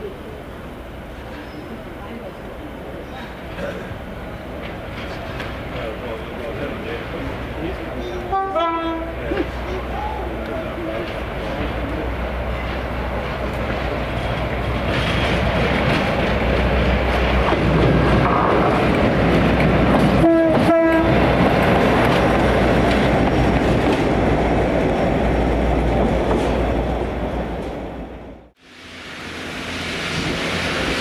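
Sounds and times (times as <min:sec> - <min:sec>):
train passing rumble: 0:00.0 - 0:31.0
train horn blasts: 0:08.3 - 0:09.2, 0:20.2 - 0:21.2.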